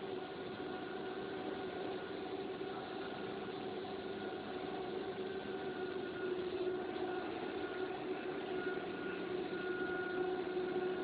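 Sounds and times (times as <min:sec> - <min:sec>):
extrusion machine drone: 0:00.0 - 0:11.0.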